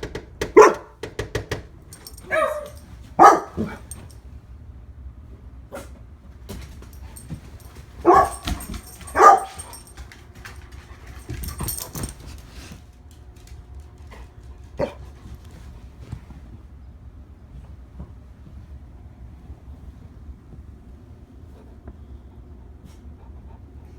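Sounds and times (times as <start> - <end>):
dog barking: 0.5 - 1.0, 2.0 - 4.1, 8.0 - 10.0.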